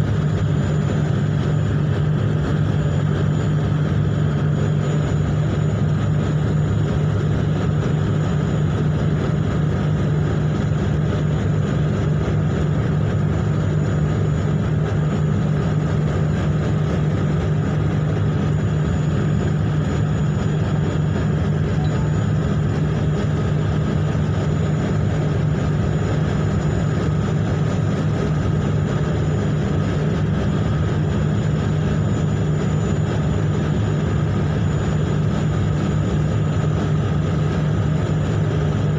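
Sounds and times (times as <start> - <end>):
ship engine drone: 0.0 - 38.9
faint high whine: 13.4 - 38.8.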